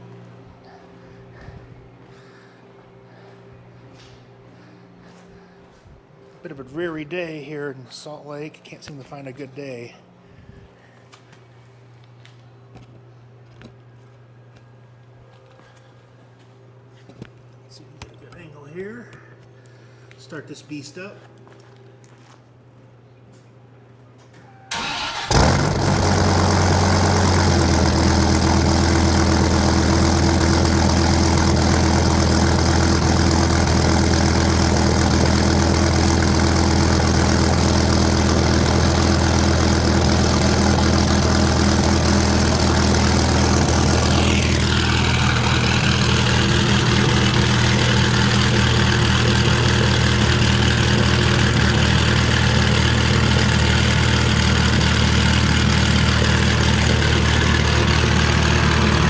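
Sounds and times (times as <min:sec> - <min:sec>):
engine starter cranking: 0:24.6 - 0:28.5
car engine revving and idling: 0:24.8 - 0:59.0.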